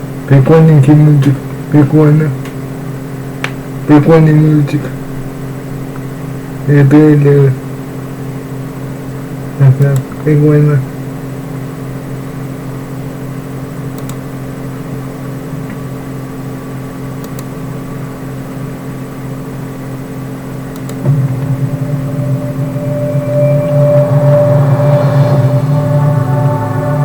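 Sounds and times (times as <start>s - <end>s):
steady low hum: 0.0s - 27.0s
loud sound with held tones: 19.6s - 27.0s.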